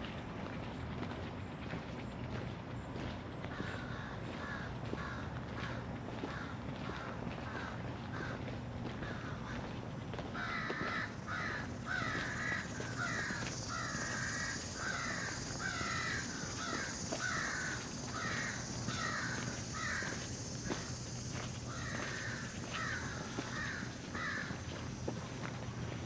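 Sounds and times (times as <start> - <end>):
bird harsh calls: 10.4 - 24.6.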